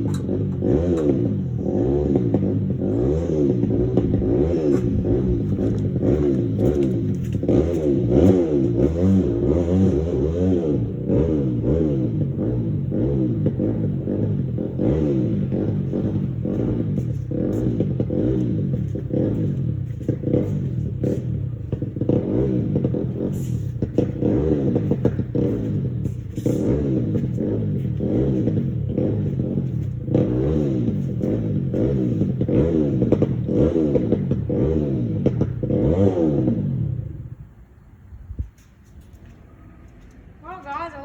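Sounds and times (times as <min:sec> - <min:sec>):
four-wheeler engine revving: 0:00.0 - 0:37.5
clatters: 0:04.0 - 0:08.8.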